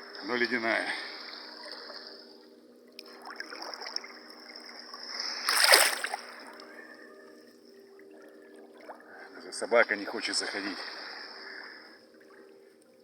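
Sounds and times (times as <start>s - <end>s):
water splashing around a swimmer: 3.0s - 6.6s.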